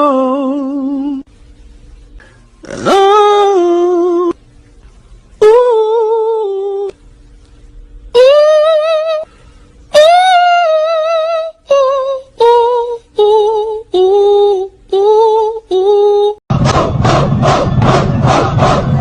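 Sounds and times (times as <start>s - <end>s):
high voice singing with vibrato: 0.0s - 1.3s, 2.6s - 4.4s, 5.4s - 7.0s, 8.1s - 16.4s
loud pulsing noise: 16.5s - 19.0s.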